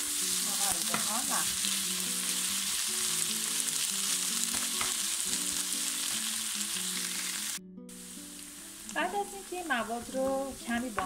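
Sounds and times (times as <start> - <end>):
soft background music: 0.0 - 11.0
vegetables sizzling in frying pan: 0.0 - 11.0.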